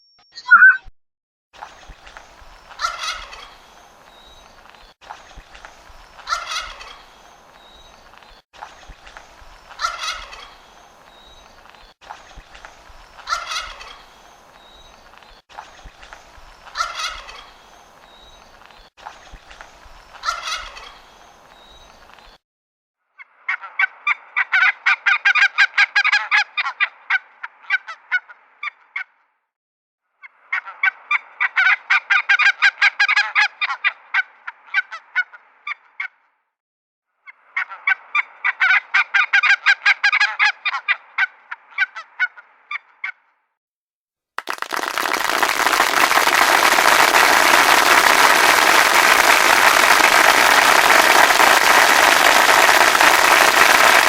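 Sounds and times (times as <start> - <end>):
turkeys gobbling: 2.7 - 3.6, 6.2 - 7.1, 9.7 - 10.6, 13.2 - 14.1, 16.7 - 17.6, 20.2 - 21.0, 24.4 - 26.8, 31.5 - 33.8, 38.5 - 42.4.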